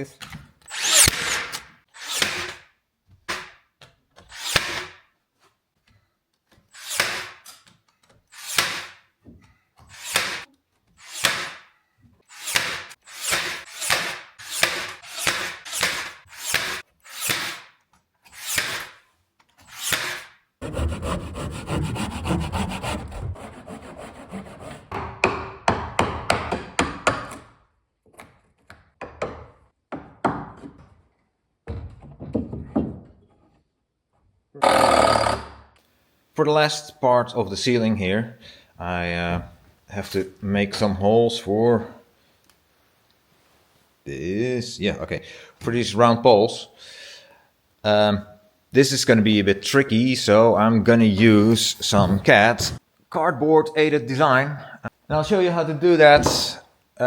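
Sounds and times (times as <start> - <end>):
saw cutting wood: 0.7 - 2.6, 6.8 - 7.4, 9.9 - 11.6, 12.2 - 17.7, 18.3 - 19.0, 19.7 - 24.9, 34.6 - 35.6.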